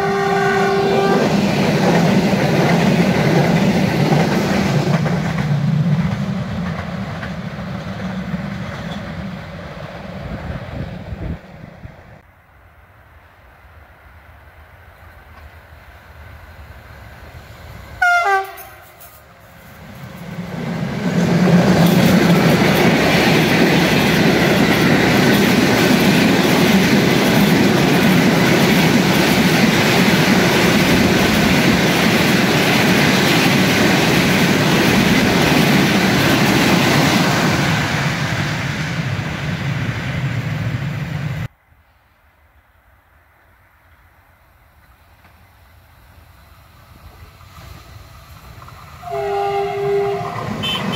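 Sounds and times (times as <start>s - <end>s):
train horn blast: 0.0s - 1.5s, 18.0s - 19.2s, 49.0s - 50.9s
train passing close by: 0.0s - 50.9s.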